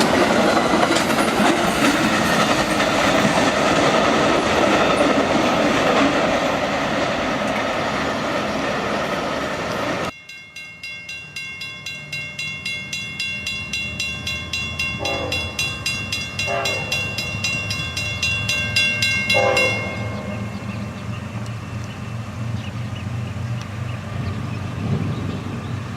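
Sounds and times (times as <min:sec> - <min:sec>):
train wheels rushing on rails: 0:00.0 - 0:10.2, 0:11.1 - 0:25.9
crossing bell ringing: 0:10.1 - 0:22.2
locomotive engine rumble: 0:11.2 - 0:25.9
locomotive horn blasts: 0:15.0 - 0:15.8, 0:16.4 - 0:17.3, 0:19.2 - 0:21.0.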